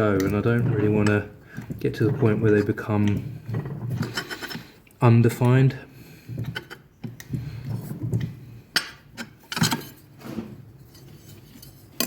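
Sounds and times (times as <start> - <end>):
metal clunks and clinks: 8.8 - 10.0.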